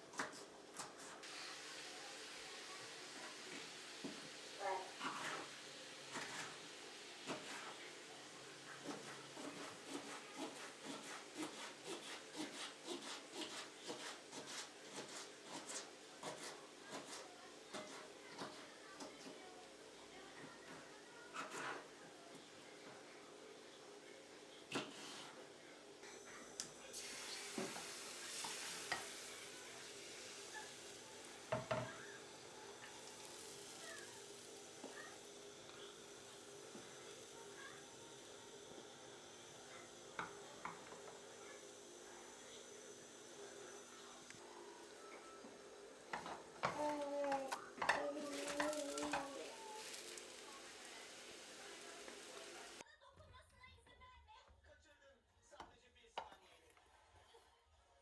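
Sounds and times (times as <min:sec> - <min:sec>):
food sizzling in frying pan: 0:01.2 - 0:16.2, 0:26.1 - 0:44.2, 0:47.8 - 0:52.8.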